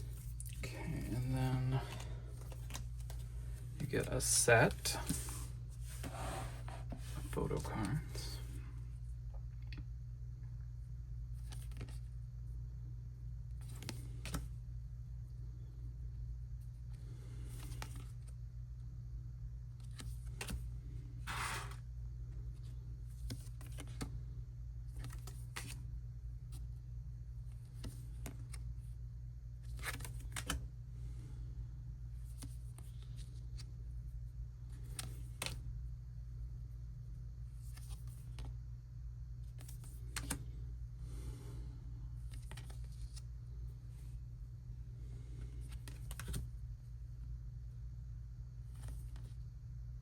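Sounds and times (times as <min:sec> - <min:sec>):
steady low hum: 0:00.0 - 0:50.0
paper cards rustling and clicking: 0:01.7 - 0:03.3, 0:11.4 - 0:12.1, 0:13.6 - 0:14.5, 0:17.4 - 0:18.3, 0:19.8 - 0:20.7, 0:22.5 - 0:24.1, 0:24.9 - 0:25.8, 0:29.6 - 0:30.6, 0:32.2 - 0:33.7, 0:34.7 - 0:35.6, 0:37.6 - 0:38.5, 0:39.5 - 0:40.4, 0:42.2 - 0:43.3, 0:45.4 - 0:46.5, 0:48.7 - 0:49.4.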